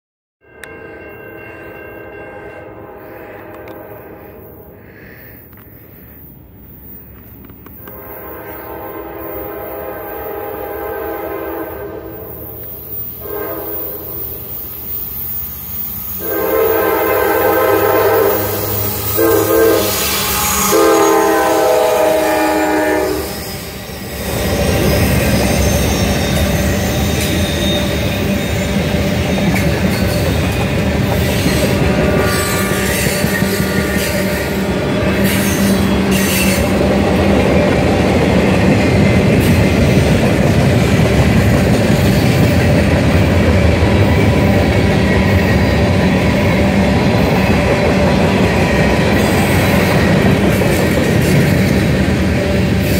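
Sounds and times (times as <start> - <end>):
train horn blasts: 0.4 - 4.9, 7.8 - 14.5, 16.2 - 24.0, 31.5 - 36.8
train rumbling past: 0.4 - 52.9
wheels clattering on rails: 24.2 - 52.9.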